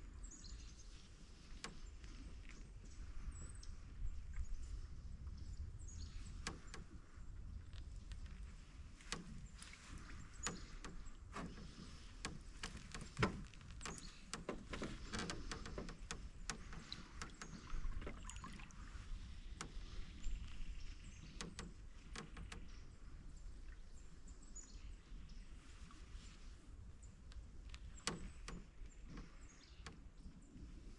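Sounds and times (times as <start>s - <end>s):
paddle swishing through water: 0.1s - 30.9s
paddle knocking on canoe hull: 9.0s - 18.7s.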